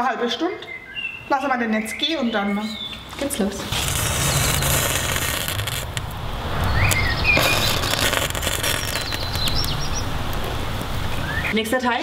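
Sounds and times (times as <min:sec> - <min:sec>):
small birds chirping: 0:00.6 - 0:04.7, 0:06.6 - 0:11.6
steady low rumble: 0:03.6 - 0:11.5.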